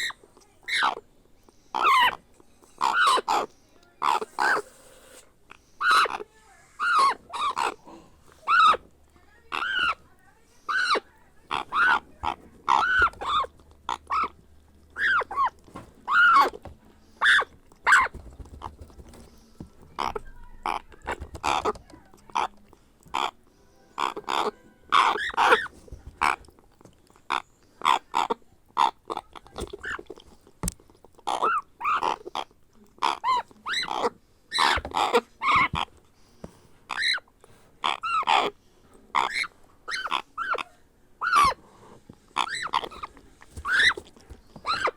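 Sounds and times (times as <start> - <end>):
parrot chick begging calls: 0.0 - 1.0, 1.8 - 2.2, 2.8 - 4.7, 5.8 - 6.2, 6.8 - 7.8, 8.4 - 8.9, 9.5 - 10.0, 10.7 - 18.3, 23.1 - 26.4, 31.3 - 35.9, 36.9 - 38.6, 39.2 - 41.6, 42.4 - 44.9.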